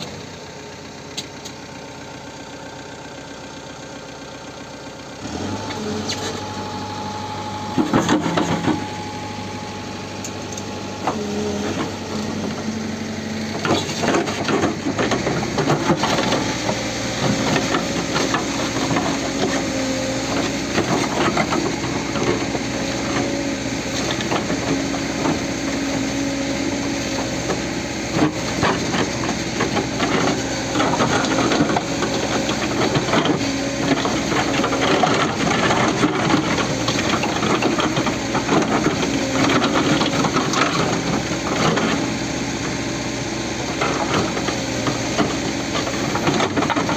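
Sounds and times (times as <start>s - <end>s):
backhoe diesel engine running hard: 0.0s - 46.9s
rock and soil clattering: 10.4s - 42.8s, 43.6s - 46.9s.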